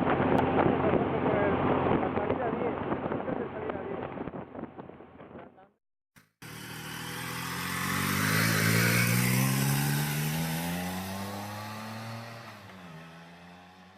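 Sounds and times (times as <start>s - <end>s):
motorcycle engine accelerating: 6.2s - 13.9s.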